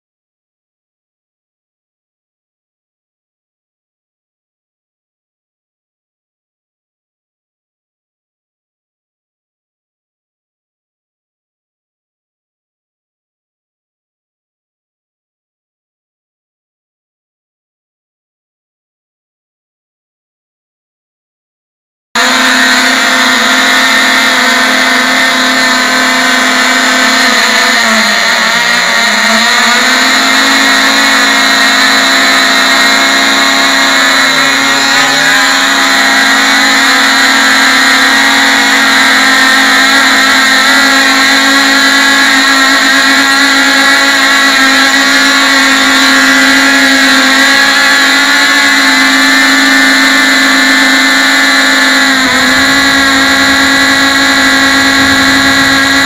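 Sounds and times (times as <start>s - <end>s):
model engines high-pitched buzz: 22.2s - 56.0s.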